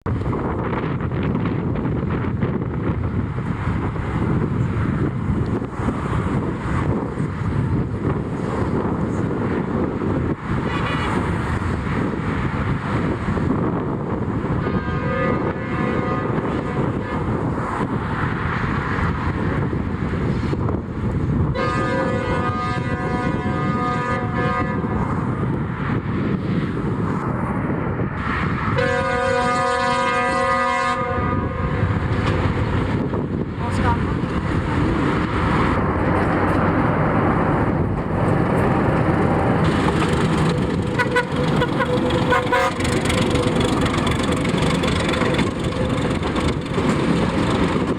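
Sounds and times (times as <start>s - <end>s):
steady rumbling noise: 0.0s - 47.9s
wind buffeting microphone: 0.0s - 47.9s
faint train horn: 14.6s - 17.3s, 21.5s - 25.1s, 28.8s - 31.8s, 40.9s - 43.5s.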